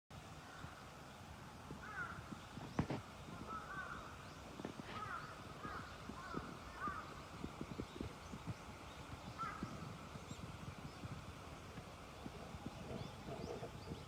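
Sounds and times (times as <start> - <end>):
crows cawing: 1.8 - 2.3, 3.5 - 4.1, 4.8 - 7.1, 9.4 - 9.7
footsteps on a trail: 1.8 - 13.5.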